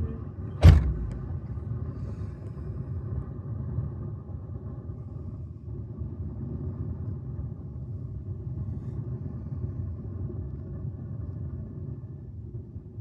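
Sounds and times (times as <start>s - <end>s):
distant jet engines rumbling: 0.0s - 1.5s.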